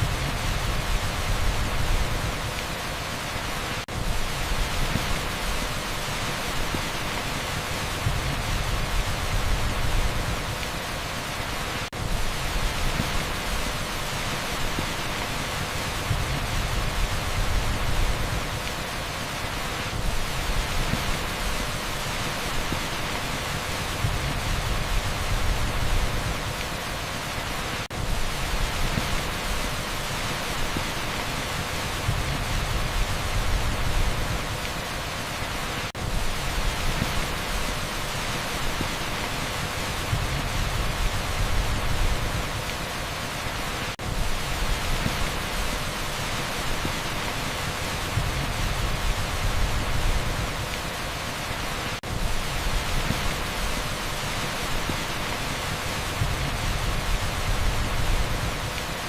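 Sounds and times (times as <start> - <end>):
heavy rain hiss: 0.0 - 59.0.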